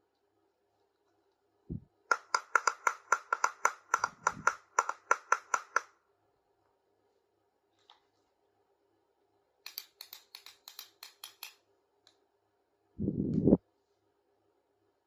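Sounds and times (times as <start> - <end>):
plastic toy pieces tapping: 2.1 - 5.9, 9.7 - 11.6.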